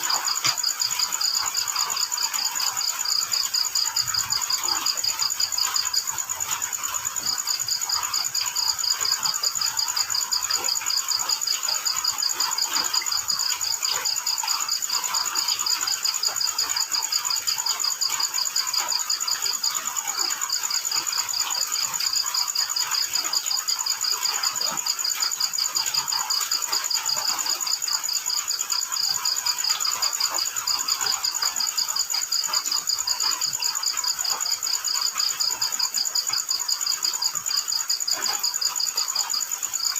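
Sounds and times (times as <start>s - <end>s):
crickets chirping in trills: 0.0s - 39.9s.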